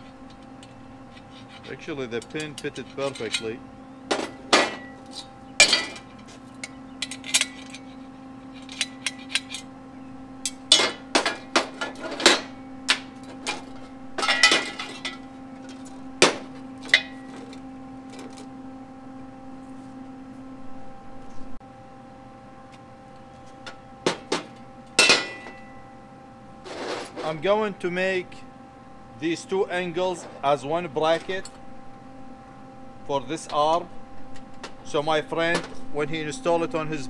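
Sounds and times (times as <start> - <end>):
steady low hum: 0.0 - 37.0
metal parts clanking on steel table: 0.3 - 9.7, 10.5 - 18.4, 24.1 - 25.6.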